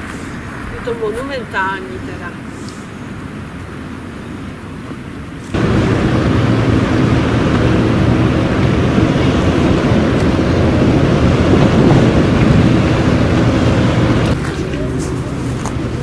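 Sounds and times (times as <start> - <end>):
boat engine running: 5.6 - 16.0.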